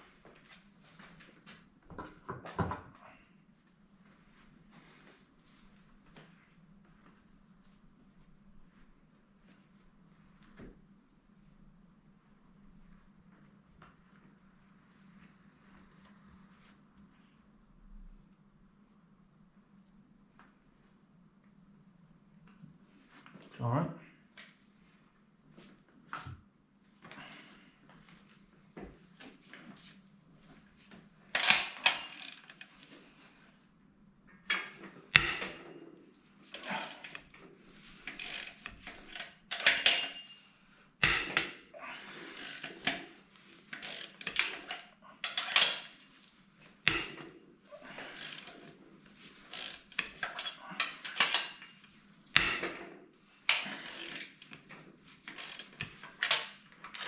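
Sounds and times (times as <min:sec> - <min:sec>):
metal parts clinking: 0:38.0 - 0:40.4, 0:43.7 - 0:46.0, 0:49.5 - 0:51.7.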